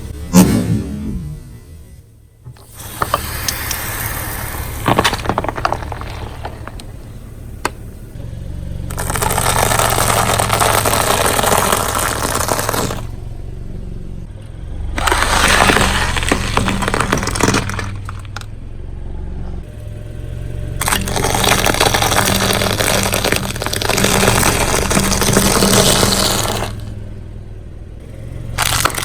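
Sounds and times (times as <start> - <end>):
car engine running: 0.0 - 29.0
tyre crushing objects: 2.6 - 8.2, 8.9 - 13.2, 15.0 - 18.5, 20.8 - 26.9, 28.6 - 29.0.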